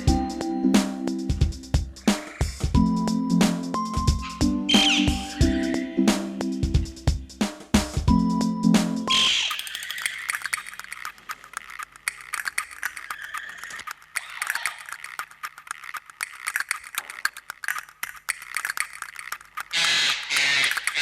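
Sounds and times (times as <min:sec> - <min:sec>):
faint bird chirping: 0:01.9 - 0:06.1, 0:09.1 - 0:11.0
birds pecking at an apple: 0:02.0 - 0:02.7, 0:09.1 - 0:21.0.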